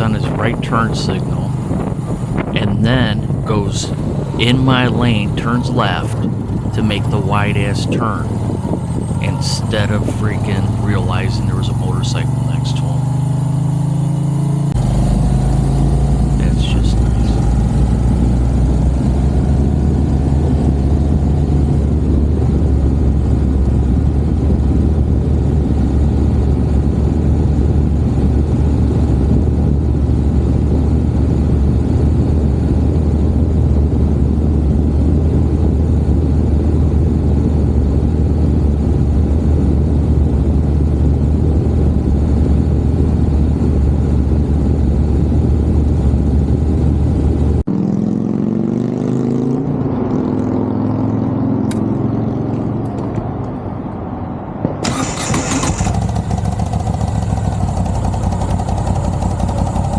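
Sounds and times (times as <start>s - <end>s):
wind rush: 0.0s - 13.6s, 14.8s - 48.8s
motorcycle engine running: 0.0s - 53.2s, 54.7s - 59.9s.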